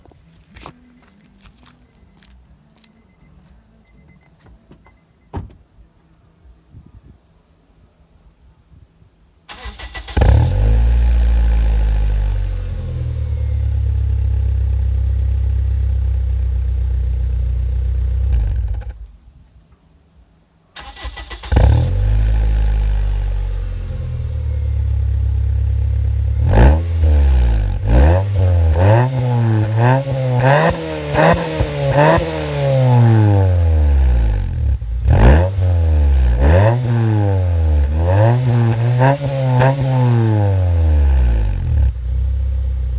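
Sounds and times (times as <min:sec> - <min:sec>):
car engine starting and idling: 0:09.4 - 0:42.9
car engine revving: 0:09.5 - 0:14.2, 0:20.8 - 0:42.9.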